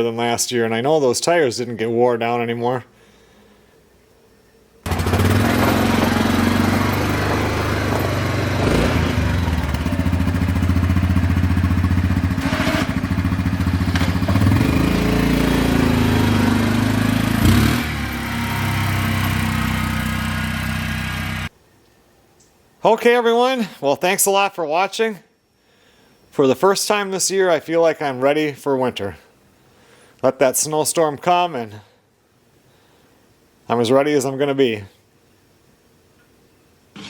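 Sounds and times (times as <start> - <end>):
atv engine running: 4.9 - 21.5.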